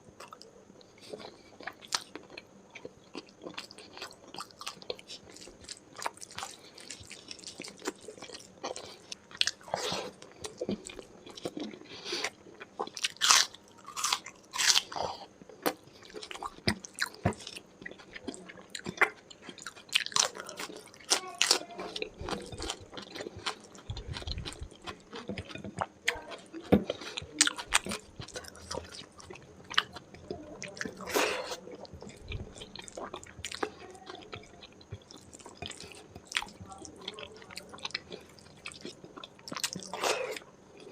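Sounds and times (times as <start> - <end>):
wet chewing: 0.2 - 40.9
crunchy bites: 3.2 - 30.0.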